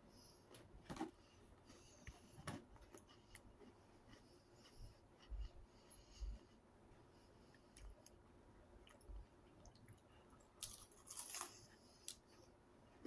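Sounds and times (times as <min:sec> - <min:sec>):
chewing and crunching crackers: 0:01.6 - 0:06.4, 0:07.5 - 0:13.0.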